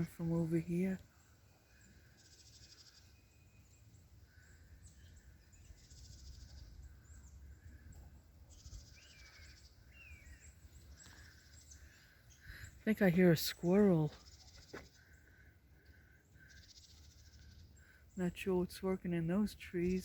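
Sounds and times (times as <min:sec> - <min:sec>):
small bird buzzy trills: 0:00.0 - 0:18.4.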